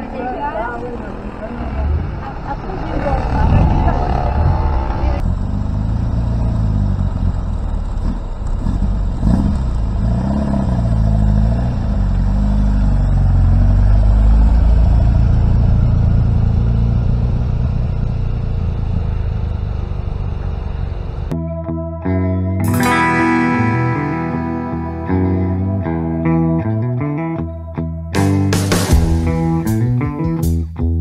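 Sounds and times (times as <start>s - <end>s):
car engine revving: 0.7s - 21.3s.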